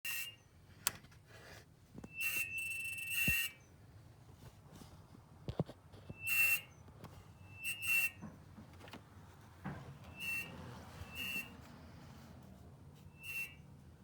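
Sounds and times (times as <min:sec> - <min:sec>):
short whistling hisses: 0:10.2 - 0:11.5, 0:13.1 - 0:13.7.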